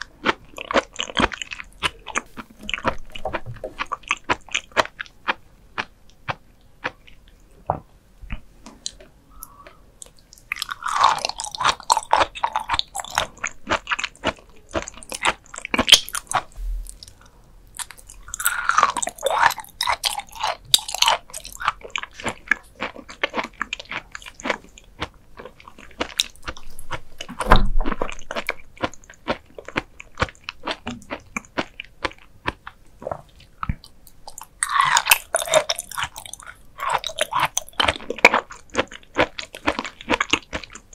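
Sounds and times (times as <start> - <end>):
chewing crisp raw liver: 0.0 - 40.9
dull low thump: 16.6 - 17.0.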